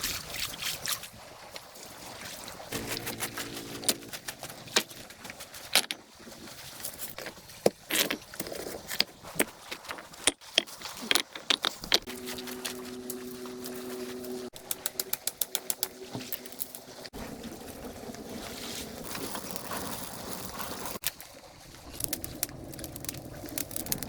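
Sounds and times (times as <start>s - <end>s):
low two-note tone: 2.8s - 5.3s, 12.1s - 14.6s
clicks and rustles of handling: 2.8s - 17.1s, 19.0s - 24.0s.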